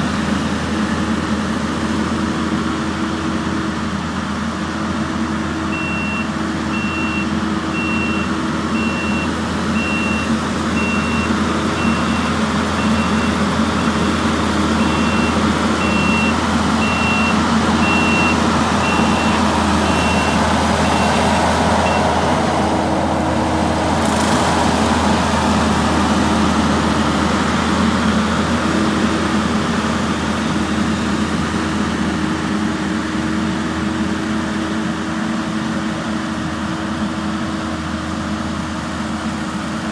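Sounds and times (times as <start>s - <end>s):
skid steer engine running: 0.0s - 39.9s
reversing alarm beeping: 5.7s - 22.2s.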